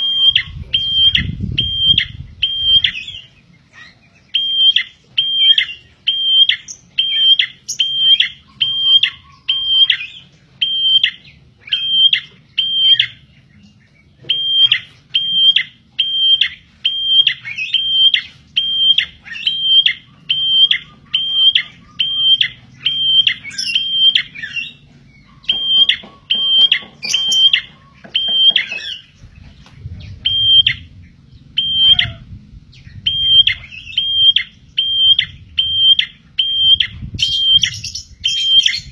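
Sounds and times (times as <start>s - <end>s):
faint bird trills: 0.0s - 38.9s
bird sharp high call: 14.2s - 29.2s, 31.6s - 32.4s.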